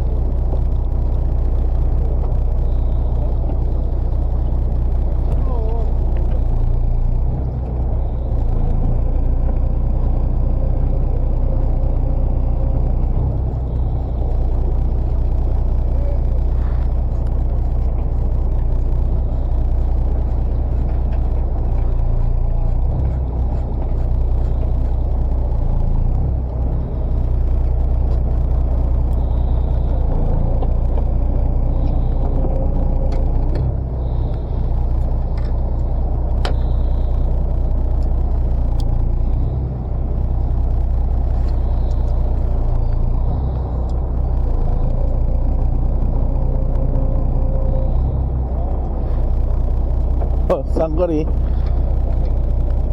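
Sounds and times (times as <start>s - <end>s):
boat engine droning: 0.0s - 52.9s
faint clicks: 14.2s - 39.5s.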